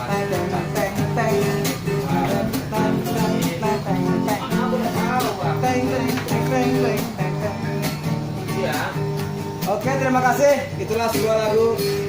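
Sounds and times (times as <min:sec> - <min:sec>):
person singing ballad: 0:00.0 - 0:08.6
acoustic guitar strumming: 0:00.0 - 0:12.0.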